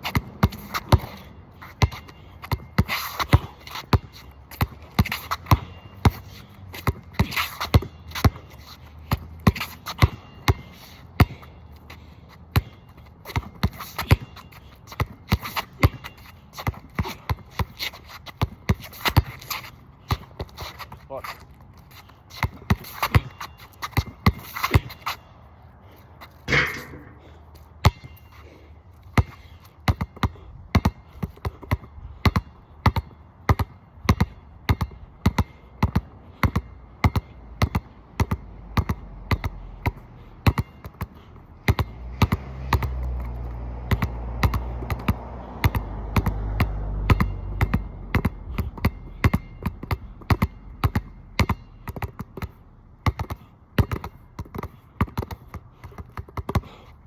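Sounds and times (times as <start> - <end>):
basketball bouncing on wet court: 0.0 - 8.4, 9.0 - 11.5, 15.0 - 20.6, 26.5 - 28.2, 29.9 - 56.8.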